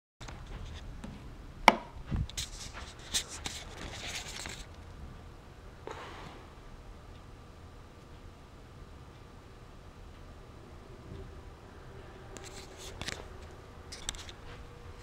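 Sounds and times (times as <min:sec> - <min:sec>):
small clicks and rustling: 0:02.3 - 0:05.0, 0:12.4 - 0:14.6.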